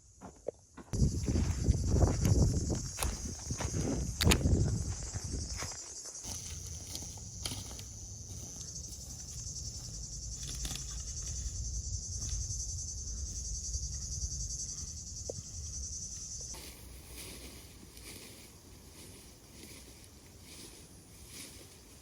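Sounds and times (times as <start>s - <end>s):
insects buzzing: 0.0s - 22.0s
low rumble: 7.8s - 16.5s.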